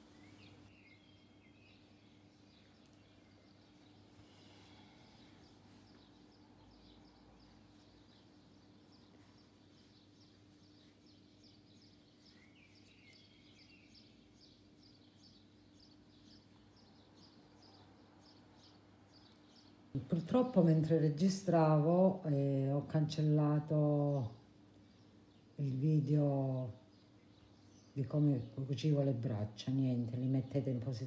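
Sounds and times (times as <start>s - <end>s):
small bird chirping faintly: 0.0s - 20.6s
faint room hum: 0.0s - 31.0s.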